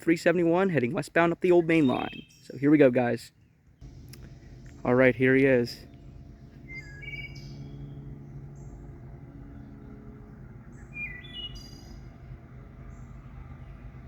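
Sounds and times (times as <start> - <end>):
songbird chirping: 0.1 - 14.0
diesel locomotive drone: 3.8 - 14.0.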